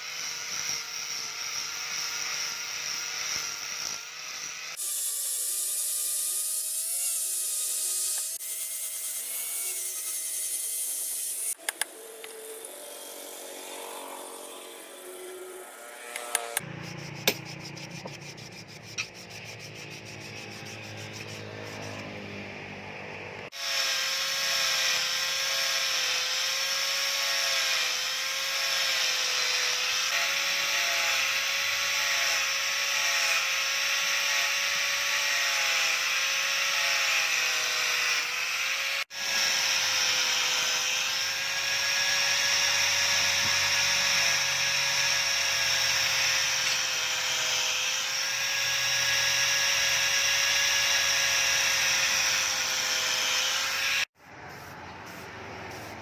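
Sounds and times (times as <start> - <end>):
power tool whining: 0.0 - 54.2.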